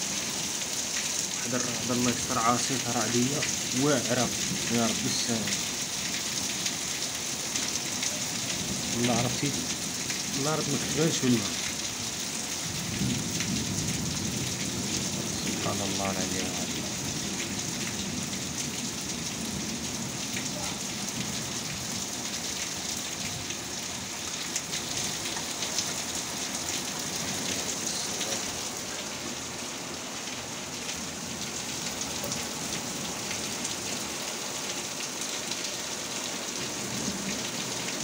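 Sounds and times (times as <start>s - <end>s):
sharp raindrop impacts: 0.0s - 29.2s
heavy rain on hard surfaces: 0.0s - 38.0s.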